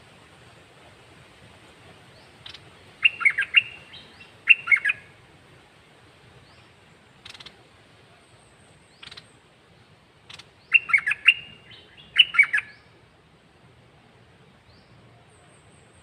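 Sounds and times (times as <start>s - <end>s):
bird warbled song: 2.1s - 5.1s, 6.4s - 7.6s, 8.2s - 13.0s.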